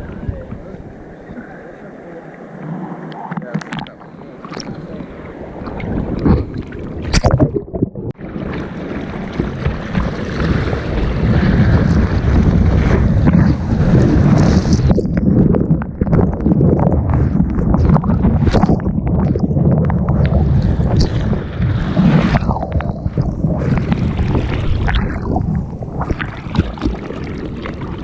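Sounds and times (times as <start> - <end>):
wind buffeting microphone: 0.0 - 1.4, 5.4 - 28.0
water rushing and splashing: 0.0 - 28.0.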